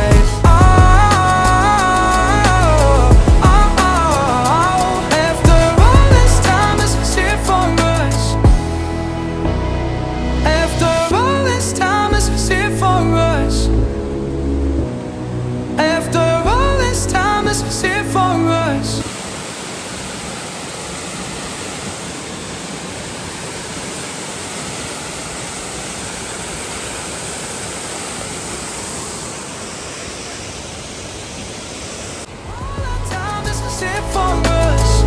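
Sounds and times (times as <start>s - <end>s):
waterfall roar: 0.0s - 9.4s, 10.5s - 35.0s
music: 0.0s - 19.0s, 32.5s - 35.0s.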